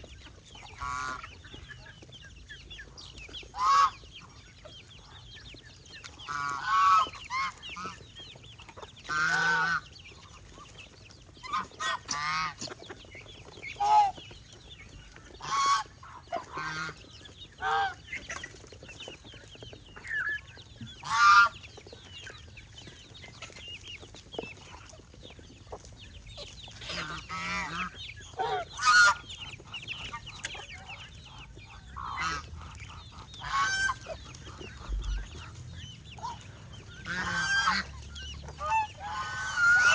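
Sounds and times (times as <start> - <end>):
geese honking: 0.6 - 1.5, 3.5 - 4.4, 6.2 - 8.0, 9.0 - 9.9, 11.4 - 12.8, 15.4 - 18.0, 21.0 - 21.6, 26.8 - 39.9.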